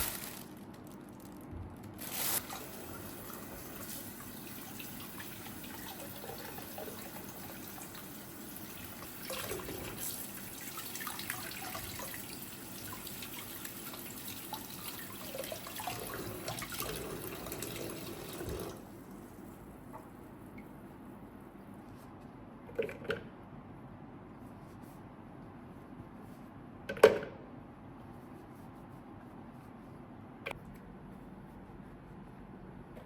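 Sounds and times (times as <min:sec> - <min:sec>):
tap water running into sink: 0:13.0 - 0:18.8.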